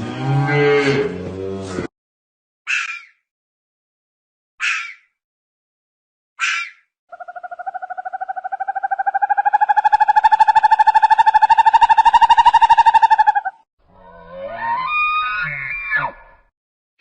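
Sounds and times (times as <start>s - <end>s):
animal rasping call and trill: 6.4s - 16.3s.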